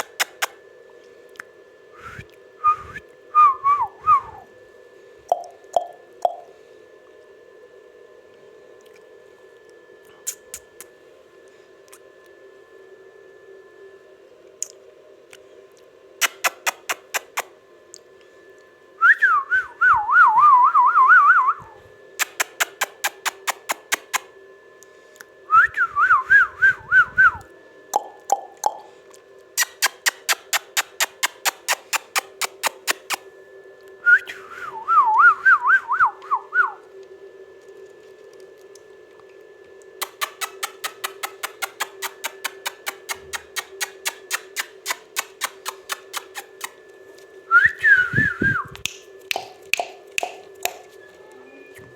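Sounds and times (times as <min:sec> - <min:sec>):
steady hum: 0:00.0 - 0:51.9
parrot whistling a tune: 0:47.5 - 0:49.5.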